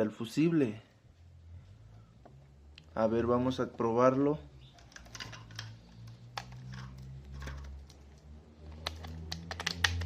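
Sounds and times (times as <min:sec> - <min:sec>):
clicks of handling plastic parts: 0:04.8 - 0:10.0.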